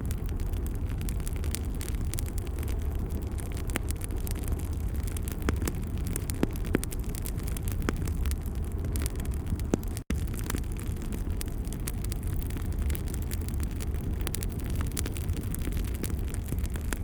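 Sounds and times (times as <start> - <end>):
wood fire crackling: 0.0 - 17.0
sharp pops and snaps: 3.6 - 10.6.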